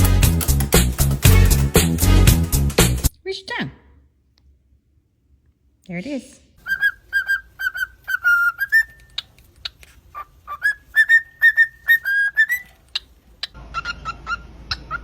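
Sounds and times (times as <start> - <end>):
background noise: 3.1 - 15.0
bird calls: 6.6 - 15.0
pet bird whistling: 6.6 - 15.0.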